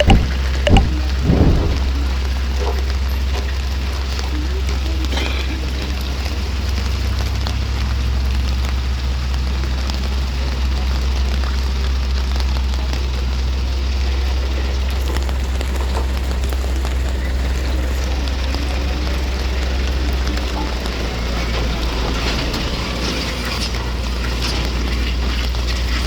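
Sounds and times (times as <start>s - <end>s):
crackling noise: 0.0s - 5.0s, 6.0s - 26.0s
engine rumbling: 0.0s - 5.1s.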